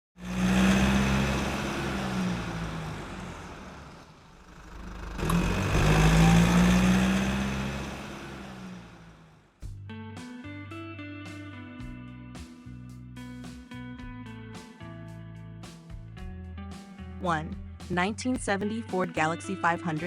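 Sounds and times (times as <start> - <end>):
car engine running: 0.2 - 9.8.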